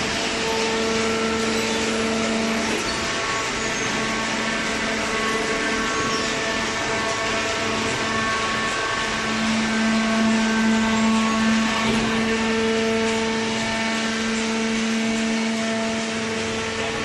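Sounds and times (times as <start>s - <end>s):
baler machine humming: 0.0s - 17.0s.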